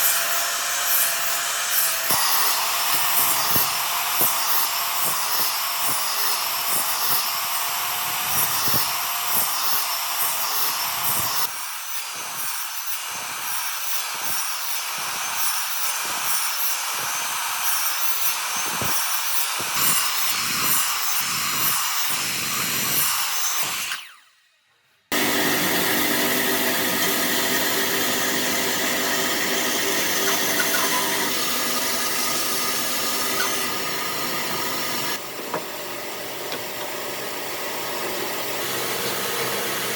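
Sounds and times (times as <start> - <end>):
motor humming steadily: 25.1 - 39.9
power tool stroking wood: 25.1 - 39.9.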